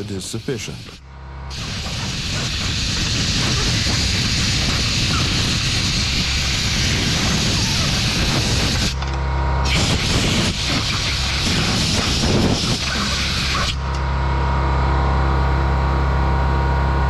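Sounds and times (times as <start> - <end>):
compressed air hissing: 0.0 - 9.0, 9.6 - 13.8.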